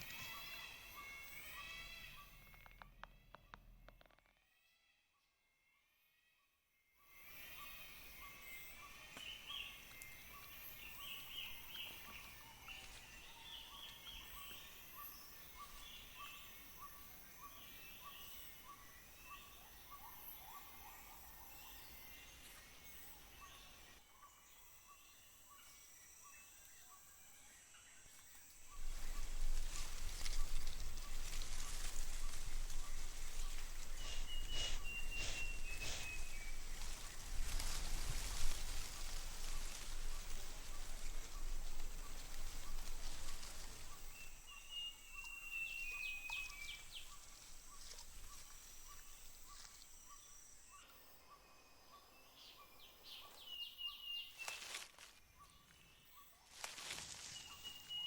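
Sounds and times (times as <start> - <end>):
insects humming: 0.0 - 2.9, 7.1 - 58.0
birds calling: 28.8 - 49.7
bird whistle: 34.0 - 36.3.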